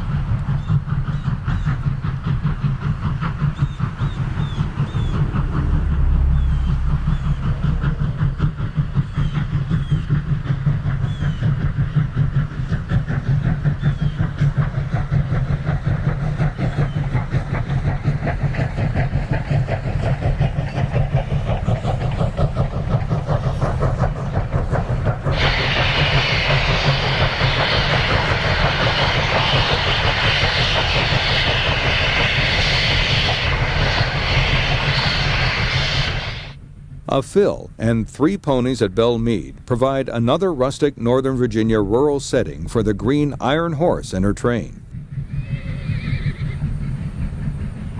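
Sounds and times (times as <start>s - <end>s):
loud steam hiss: 0.0s - 37.8s
steam locomotive exhaust beats: 0.0s - 47.9s.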